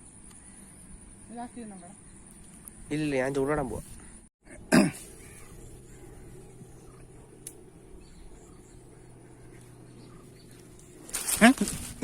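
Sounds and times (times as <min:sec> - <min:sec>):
steady low hum: 0:03.6 - 0:12.0.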